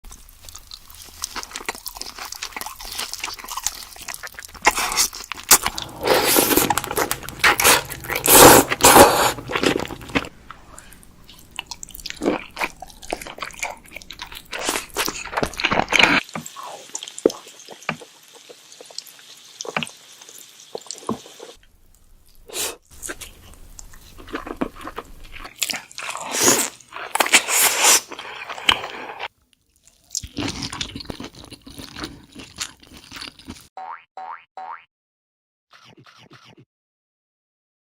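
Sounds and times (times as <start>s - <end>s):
crab shell crunching and cracking: 0.1s - 6.0s, 11.3s - 16.3s
wet chewing: 0.1s - 6.0s, 6.8s - 16.3s, 22.3s - 33.7s.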